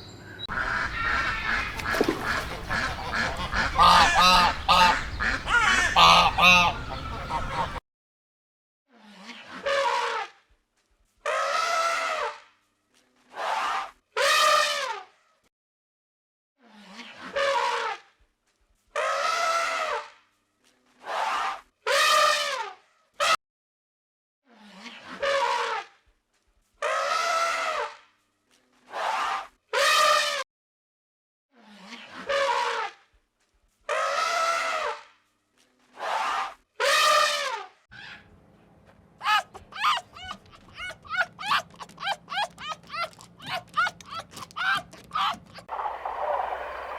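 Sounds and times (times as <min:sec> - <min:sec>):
animal calling: 0:00.5 - 0:07.8, 0:39.2 - 0:46.9.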